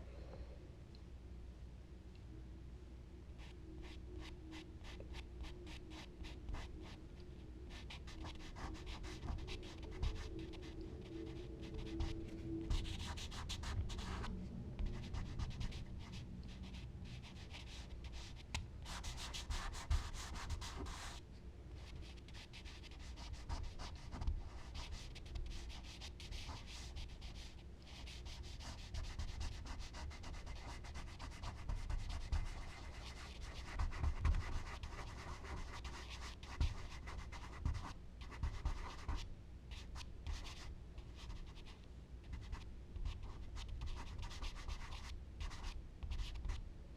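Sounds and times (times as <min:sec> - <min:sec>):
charcoal scratching on paper: 0:28.0 - 0:39.2.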